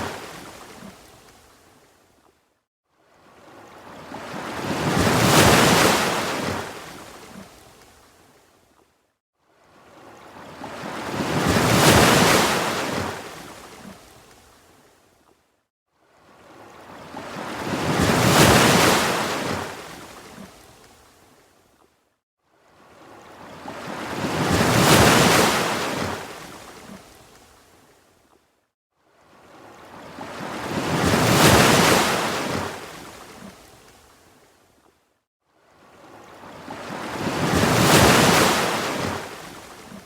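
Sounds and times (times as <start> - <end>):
ocean waves washing in: 36.0 - 40.0.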